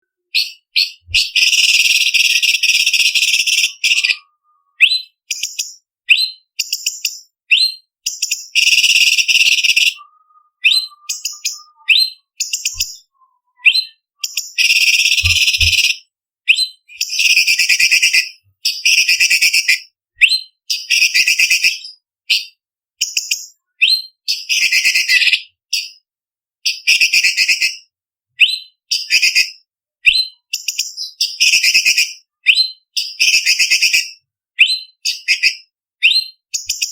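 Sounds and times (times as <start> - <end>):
bird singing harsh trills: 0.3 - 22.0.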